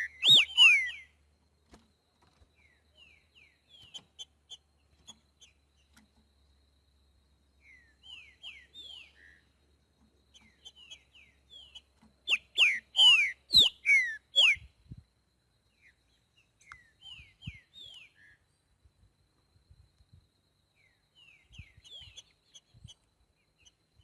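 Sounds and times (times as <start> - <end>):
bird whistling song: 0.0 - 1.2, 2.6 - 5.6, 7.6 - 9.5, 10.3 - 15.0, 15.8 - 18.4, 20.8 - 23.0.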